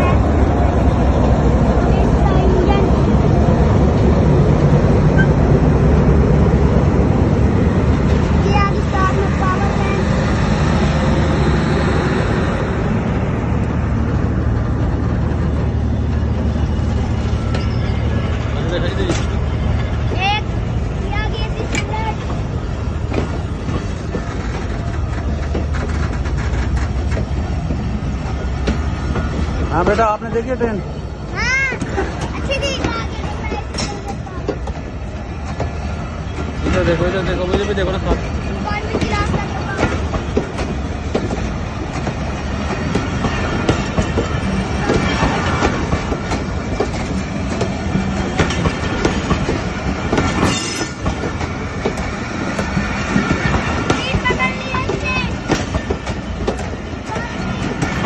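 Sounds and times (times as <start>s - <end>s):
train rumbling past: 0.0s - 58.0s
wheels clicking over rail joints: 18.9s - 58.0s.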